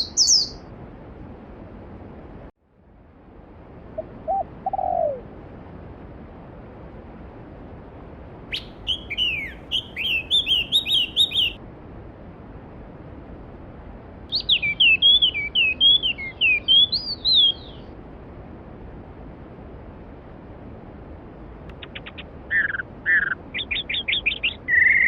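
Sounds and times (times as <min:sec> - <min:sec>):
songbird chirping: 0:00.0 - 0:00.7, 0:08.5 - 0:11.6, 0:14.3 - 0:18.0, 0:21.7 - 0:25.0.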